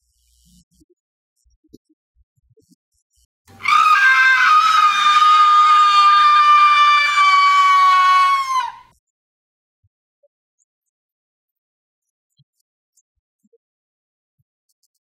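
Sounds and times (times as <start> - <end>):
person screaming: 3.6 - 8.8.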